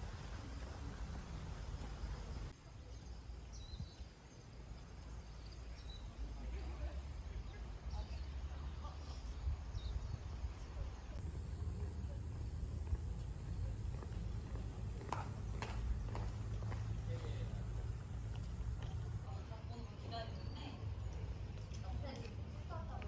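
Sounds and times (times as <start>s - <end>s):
steady low rumble: 11.0s - 19.3s.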